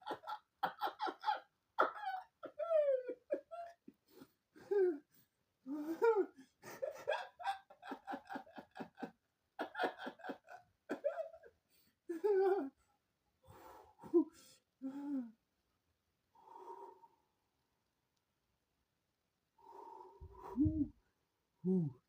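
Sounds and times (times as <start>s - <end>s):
person laughing hard: 0.0s - 5.0s, 5.7s - 11.5s.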